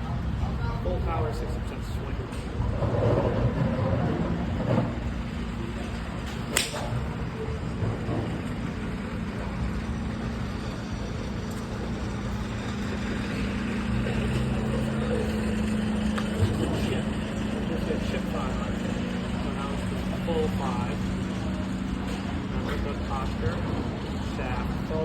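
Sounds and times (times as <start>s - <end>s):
steady low hum: 0.0s - 25.0s
golf club striking ball: 6.3s - 7.0s.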